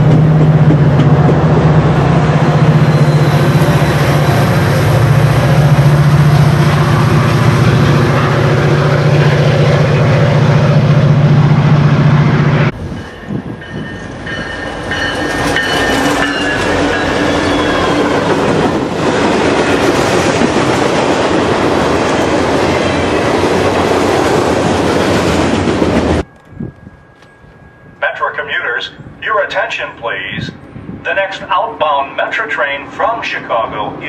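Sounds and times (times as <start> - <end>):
diesel locomotive engine: 0.0 - 34.0
freight train wheels on rail: 0.0 - 34.0
wheels squealing: 2.1 - 5.6, 14.7 - 18.7.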